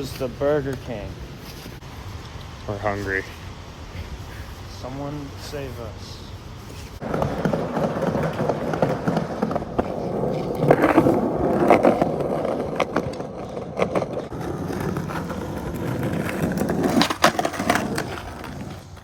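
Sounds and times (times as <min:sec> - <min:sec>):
skateboard wheels rumbling: 0:06.6 - 0:19.0
skateboard clicks and knocks: 0:07.0 - 0:19.0.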